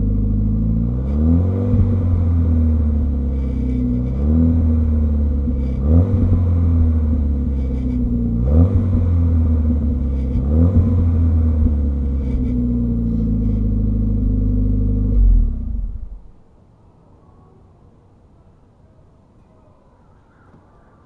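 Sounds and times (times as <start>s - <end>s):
turbocharged engine revving: 0.0s - 16.3s.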